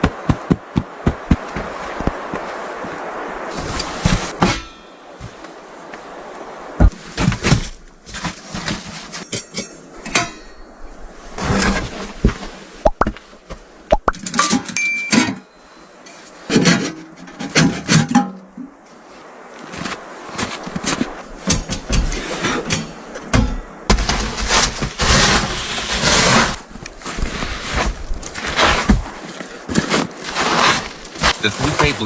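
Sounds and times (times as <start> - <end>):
clinking dishes and pots: 4.4 - 5.4, 9.2 - 10.7, 14.4 - 15.5
brief ringing tone: 14.8 - 15.8.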